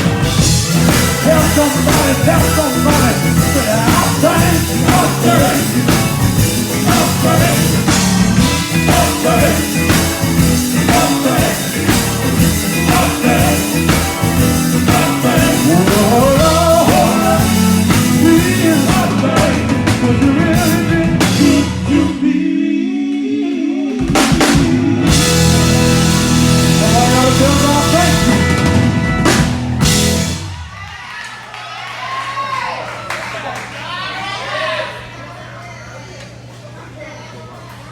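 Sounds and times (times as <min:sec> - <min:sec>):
drum kit: 0:00.0 - 0:22.2, 0:24.0 - 0:30.9
bass: 0:00.0 - 0:31.1
gospel band playing: 0:00.0 - 0:31.1
people singing: 0:00.4 - 0:28.6.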